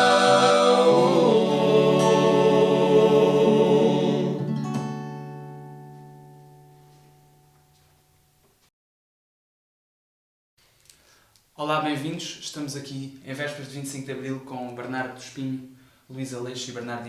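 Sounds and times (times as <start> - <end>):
male voices singing: 0.0 - 4.5
plucked string chord: 4.3 - 7.8.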